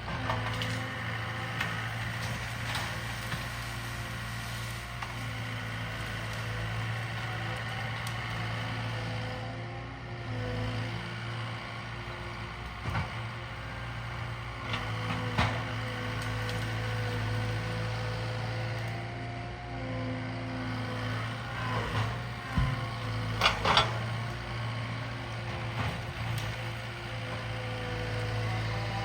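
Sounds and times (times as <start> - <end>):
loader diesel engine running: 0.0 - 29.0
sharp knocks and clanks: 22.5 - 24.1.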